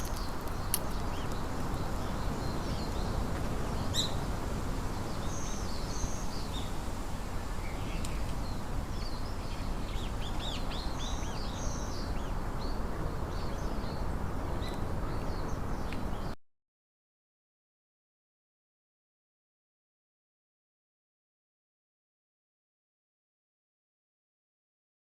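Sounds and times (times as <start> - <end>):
small birds chirping: 0.0 - 1.5.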